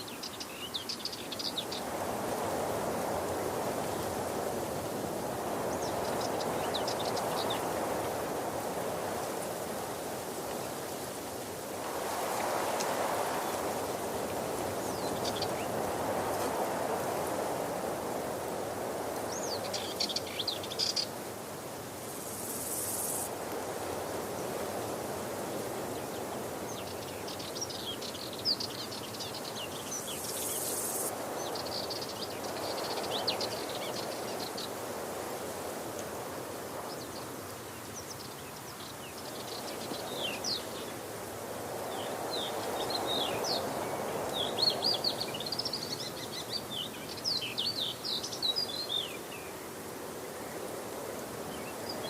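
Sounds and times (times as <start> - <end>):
small birds chirping: 0.0 - 2.4, 5.5 - 9.5, 12.0 - 17.4, 19.2 - 21.2, 25.9 - 34.8, 41.8 - 49.6.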